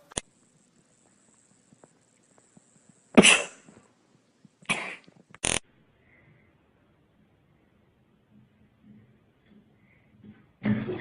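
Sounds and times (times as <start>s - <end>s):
coughs or sneezes: 3.2s - 3.7s, 4.7s - 5.1s.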